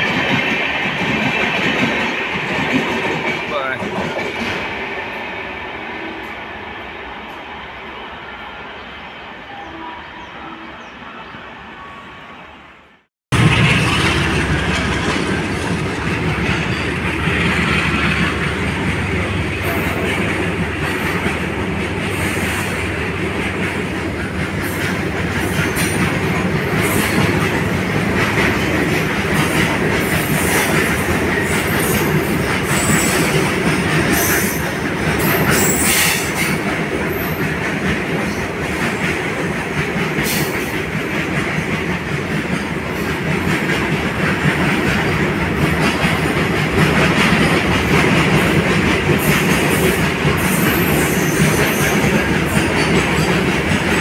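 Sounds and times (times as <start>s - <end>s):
freight wagons rolling on rails: 13.4s - 54.0s.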